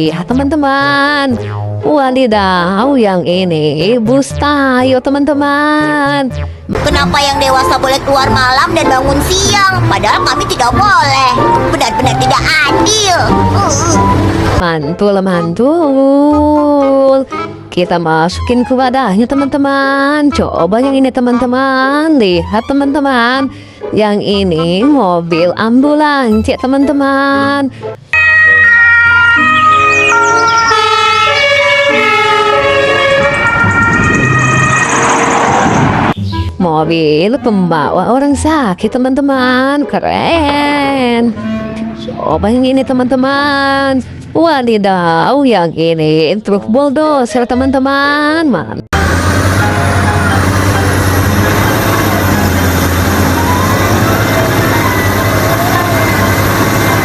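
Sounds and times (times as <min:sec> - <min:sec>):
bulldozer engine droning: 0:06.8 - 0:14.6, 0:28.0 - 0:36.2, 0:49.0 - 0:57.0
toy electronic siren: 0:28.1 - 0:35.7.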